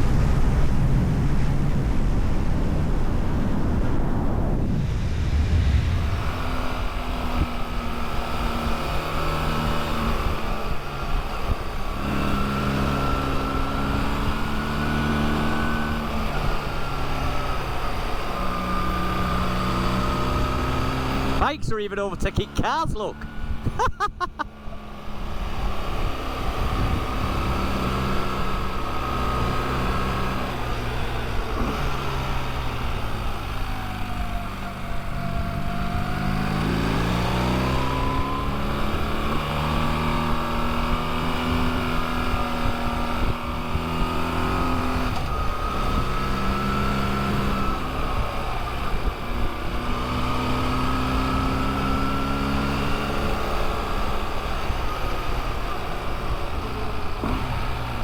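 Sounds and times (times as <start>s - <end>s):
wind rushing: 0.1s - 8.2s.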